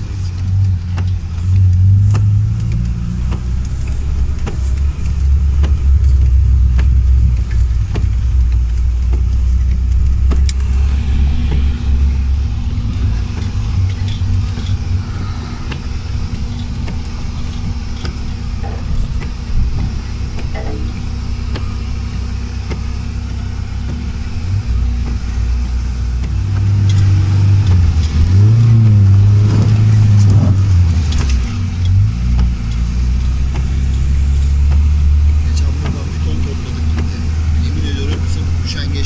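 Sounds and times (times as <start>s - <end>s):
car engine droning: 0.0s - 39.0s
clicks and knocks: 11.4s - 24.1s.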